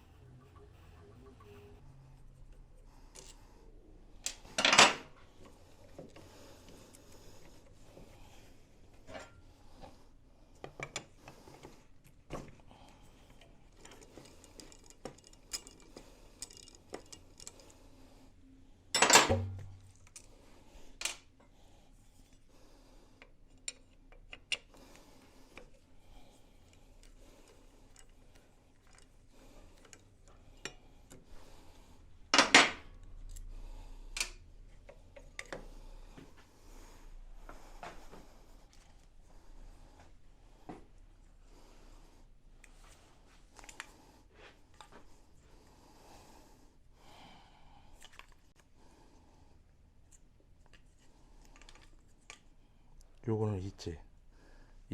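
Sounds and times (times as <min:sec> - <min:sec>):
metal tools clinking: 0:04.3 - 0:05.0, 0:13.7 - 0:17.8, 0:19.0 - 0:20.2.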